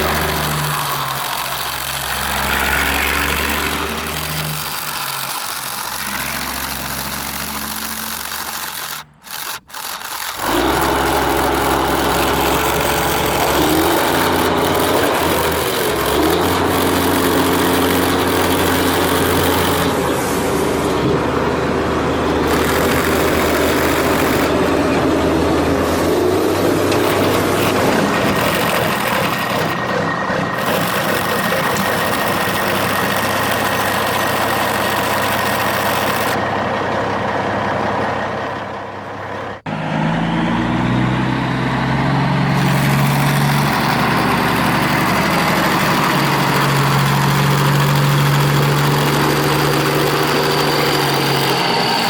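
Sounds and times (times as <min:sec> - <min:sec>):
rubbing scraping noise: 0:00.0 - 0:38.7
model engine humming: 0:00.0 - 0:52.0.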